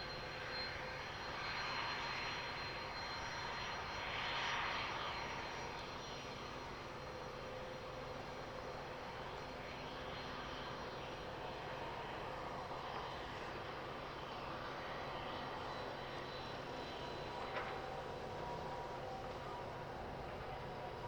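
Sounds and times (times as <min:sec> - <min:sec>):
jet engines running: 0:09.0 - 0:21.0.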